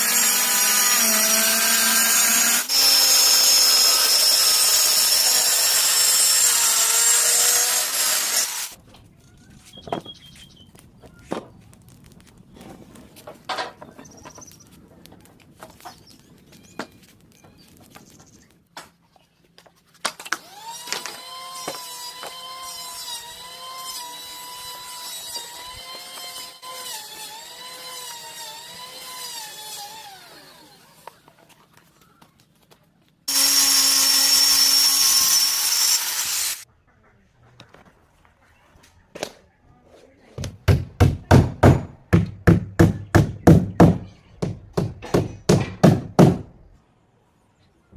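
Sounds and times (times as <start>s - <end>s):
electric power tools whining: 0.0s - 8.8s, 20.4s - 31.1s, 33.3s - 36.6s.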